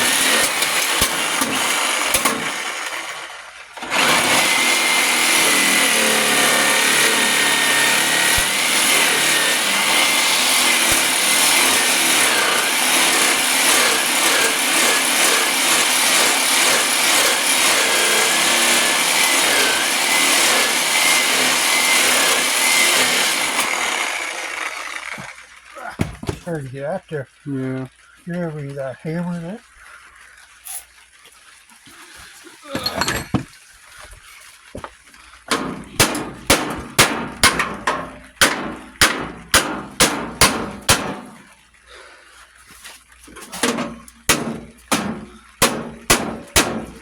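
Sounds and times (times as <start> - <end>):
power tool motor whine: 0.0 - 25.5.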